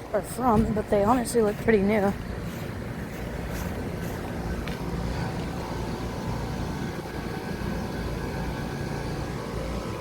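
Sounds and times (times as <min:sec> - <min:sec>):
air conditioner units humming: 0:00.0 - 0:10.0.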